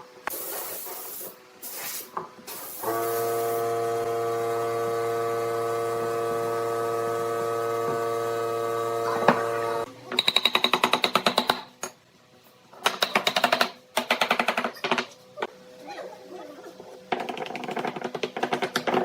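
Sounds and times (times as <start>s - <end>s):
spraying hiss: 0.3s - 3.6s
steady machine hum: 3.2s - 10.0s.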